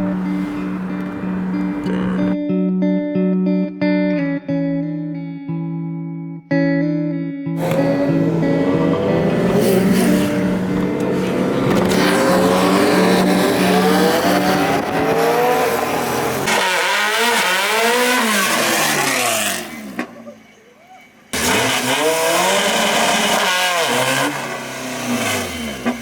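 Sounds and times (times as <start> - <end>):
car engines revving: 0.0 - 2.4, 7.6 - 26.0.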